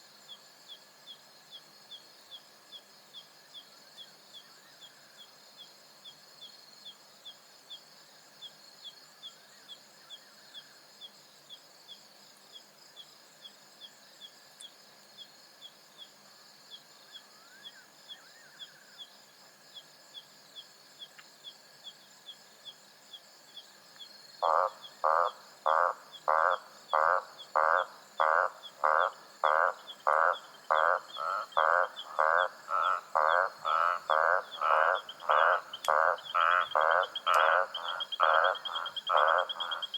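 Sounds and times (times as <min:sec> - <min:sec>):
insect chirping: 0:00.0 - 0:39.9
insects trilling: 0:00.0 - 0:39.9
frog croaking loudly: 0:24.4 - 0:39.9.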